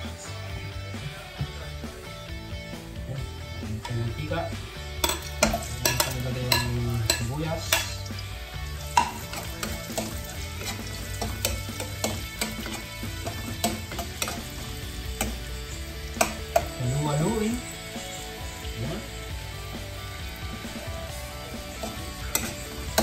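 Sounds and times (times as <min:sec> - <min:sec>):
onion and garlic sizzling in oil: 0:03.5 - 0:23.0
metal spoon scraping a pan: 0:05.0 - 0:19.3, 0:20.2 - 0:23.0.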